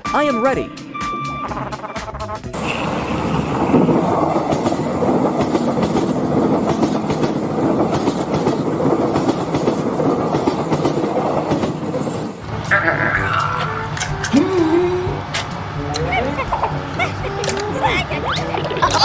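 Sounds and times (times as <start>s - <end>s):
vehicle rumble: 12.4s - 19.0s.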